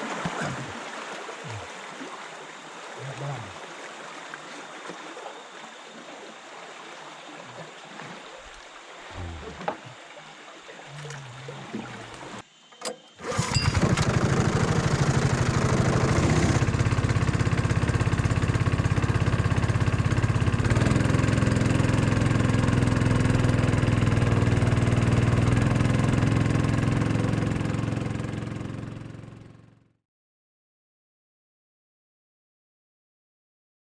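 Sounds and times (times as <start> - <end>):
small engine running: 13.2 - 29.9.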